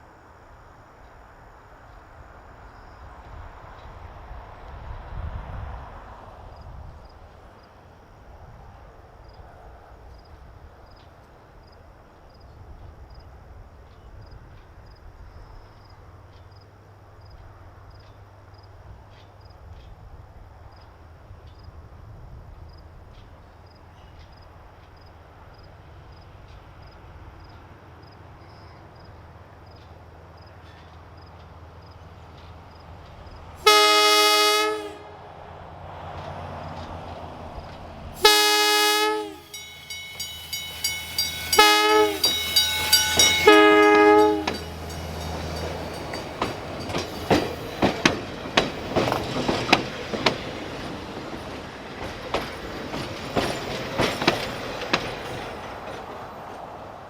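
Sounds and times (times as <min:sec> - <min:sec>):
electric train horn blast: 0:33.6 - 0:35.4, 0:38.2 - 0:44.9.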